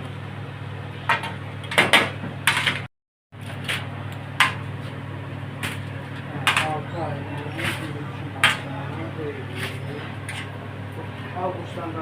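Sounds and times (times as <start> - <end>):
steady low hum: 0.0 - 12.0
utensils and dishes clinking: 6.4 - 8.8.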